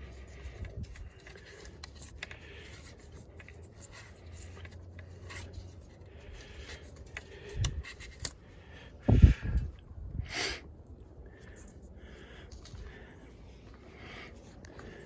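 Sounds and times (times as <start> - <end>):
rubbing and scraping engine part: 0.0 - 8.4, 11.4 - 15.0.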